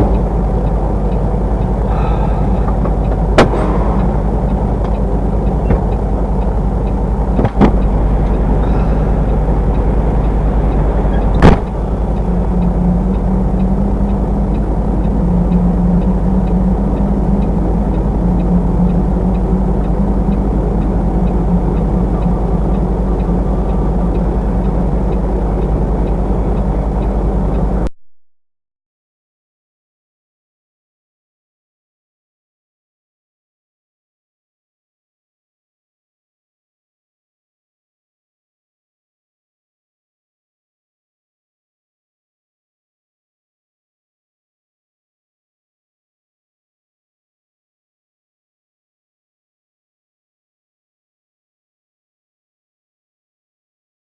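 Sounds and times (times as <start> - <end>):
truck engine droning: 0.0 - 27.9
sharp knocks: 2.7 - 5.0, 7.4 - 7.9, 11.4 - 11.8.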